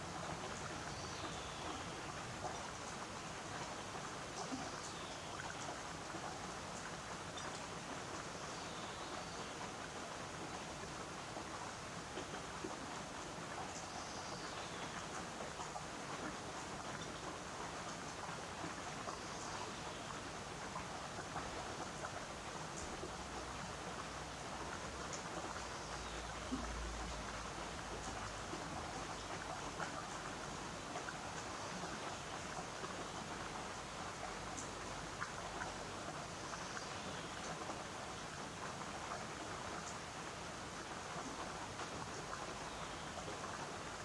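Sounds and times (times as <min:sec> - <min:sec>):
water drips and patters: 0:20.1 - 0:44.0.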